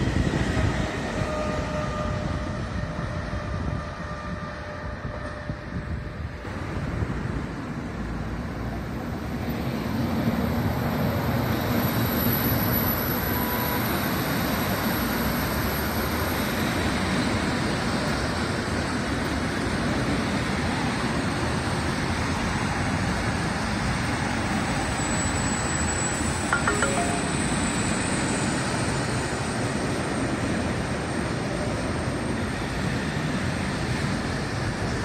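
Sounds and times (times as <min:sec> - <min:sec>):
freight train wheels on rails: 0:00.0 - 0:25.8.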